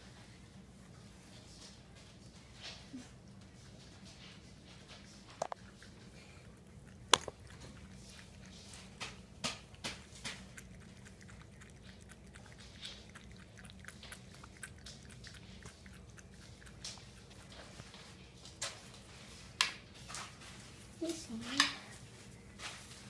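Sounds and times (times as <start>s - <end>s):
cat lapping water: 3.1s - 19.9s.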